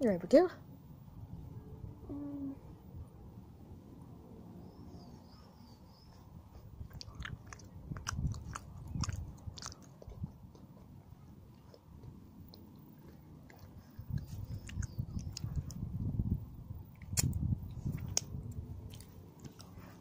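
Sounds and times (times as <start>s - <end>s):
chewing crunchy chocolate: 6.5s - 16.0s, 16.8s - 19.8s.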